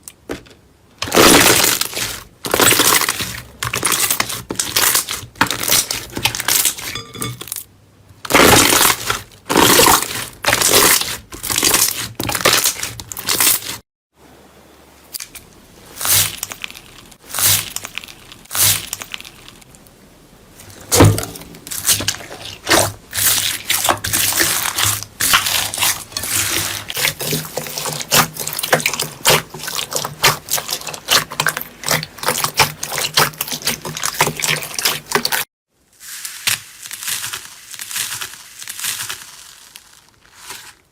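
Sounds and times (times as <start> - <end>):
slime squishing and crackling: 1.0 - 7.0, 8.3 - 13.8, 15.9 - 19.7, 20.9 - 40.9.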